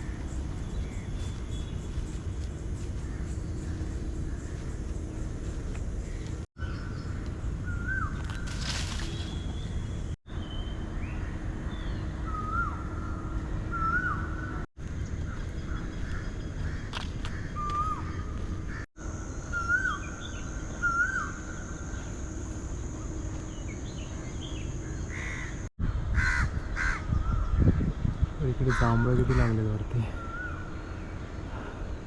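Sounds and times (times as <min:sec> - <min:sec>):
distant traffic: 0:00.0 - 0:27.1, 0:28.2 - 0:32.0
crow cawing: 0:03.0 - 0:04.8, 0:15.3 - 0:18.8, 0:25.1 - 0:25.6, 0:26.2 - 0:27.1
wind rumble: 0:10.8 - 0:18.9, 0:23.7 - 0:32.0
bird whistling: 0:19.5 - 0:21.4.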